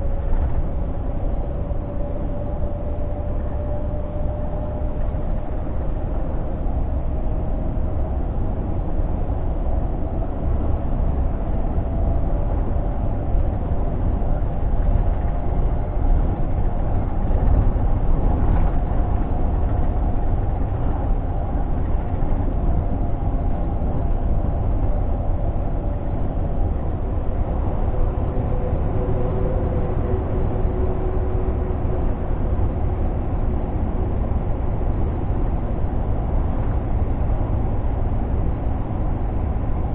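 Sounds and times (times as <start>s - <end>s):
diesel truck engine rumble: 0.0s - 39.9s
faint whine: 0.0s - 39.9s
road noise: 0.0s - 39.9s.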